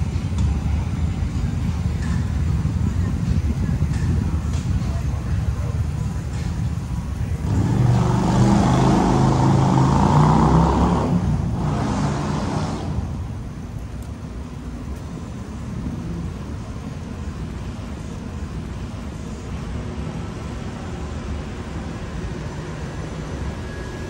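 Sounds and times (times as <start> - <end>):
low traffic rumble: 0.0 - 24.0
vehicle passing close by: 7.4 - 13.4.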